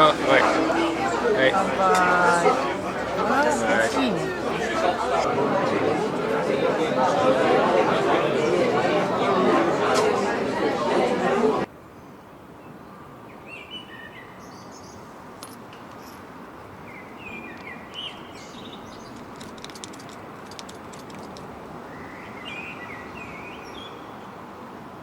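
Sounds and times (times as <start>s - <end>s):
small songbirds chirping: 16.8s - 19.3s, 21.9s - 24.4s.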